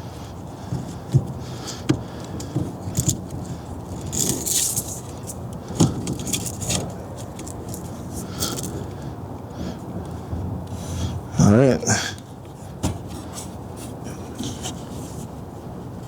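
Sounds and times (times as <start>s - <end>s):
metal parts clicking and knocking: 2.9s - 8.8s
metal parts jangling rattle: 2.9s - 8.8s.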